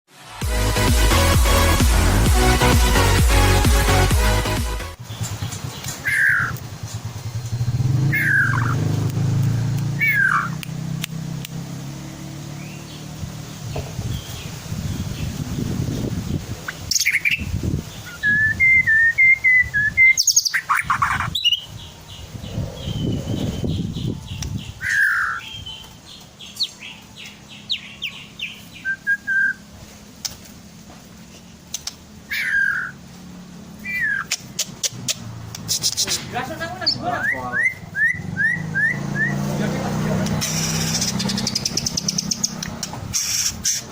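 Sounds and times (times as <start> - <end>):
engine low rumble: 0.6 - 43.9
bird whistled calls: 6.0 - 6.6, 8.0 - 8.9, 9.9 - 10.8, 16.7 - 25.9, 27.6 - 29.7, 32.3 - 33.0, 33.8 - 39.6, 40.3 - 43.9.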